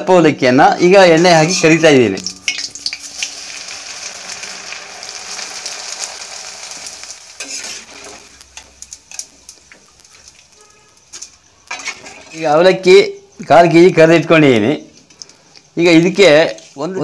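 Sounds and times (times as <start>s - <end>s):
rice flakes sizzling in oil: 1.2s - 12.6s.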